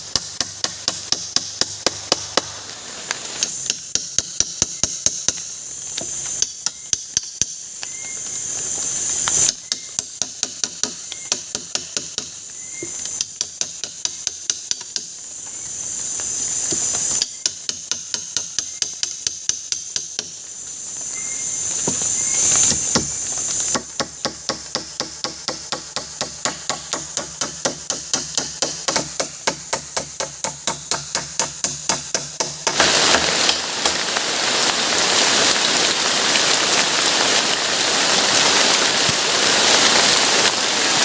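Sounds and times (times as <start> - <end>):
high insect drone: 0.0 - 41.0
rapid hammer blows: 22.7 - 34.2.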